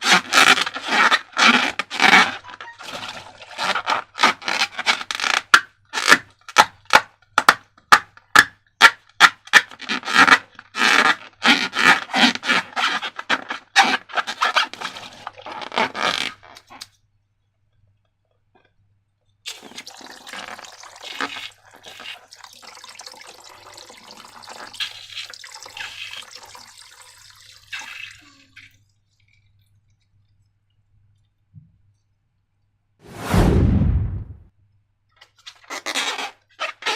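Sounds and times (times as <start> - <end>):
crisp slime scraping: 0.0 - 6.1
liquid being poured: 2.4 - 3.7, 19.5 - 30.5.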